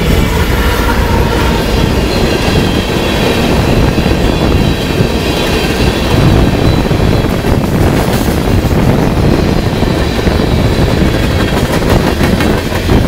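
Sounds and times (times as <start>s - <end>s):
high wheel squeal: 0.0s - 7.4s
freight train rolling past: 0.0s - 13.0s.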